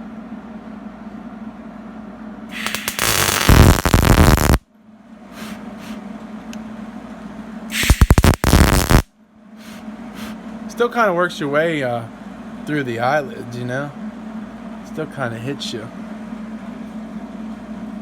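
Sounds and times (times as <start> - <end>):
steady low hum: 0.0 - 18.0
arc welding crackle: 2.5 - 4.6, 7.7 - 9.1.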